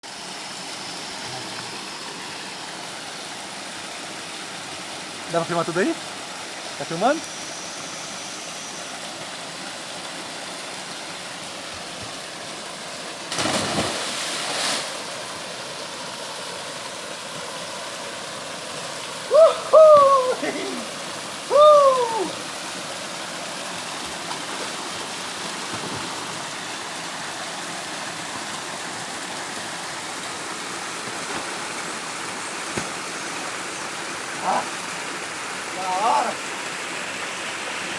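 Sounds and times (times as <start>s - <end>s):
waterfall rushing: 13.1s - 32.5s, 33.7s - 37.9s
diver splashing into water: 13.3s - 15.0s
person whooping: 19.2s - 22.5s.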